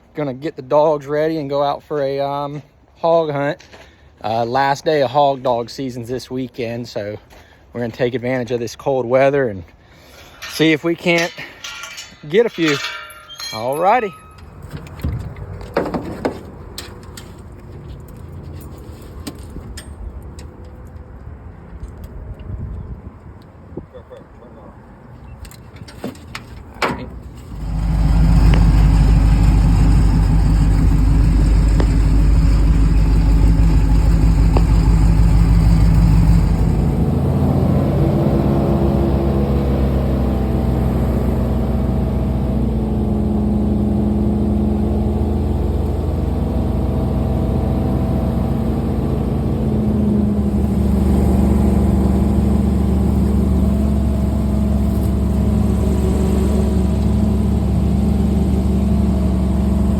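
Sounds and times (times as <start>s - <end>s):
vehicle engine running: 27.3s - 37.7s, 45.0s - 59.9s.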